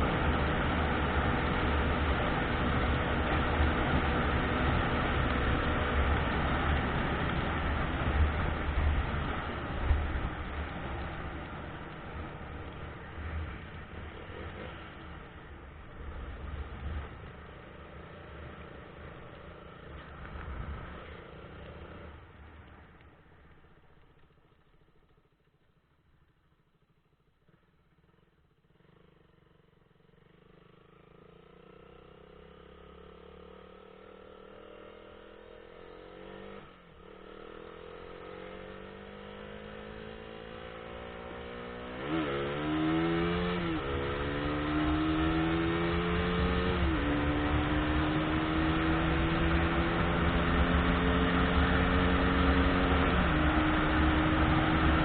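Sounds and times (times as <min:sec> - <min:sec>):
road noise: 0:00.0 - 0:55.0
car engine accelerating: 0:32.4 - 0:55.0.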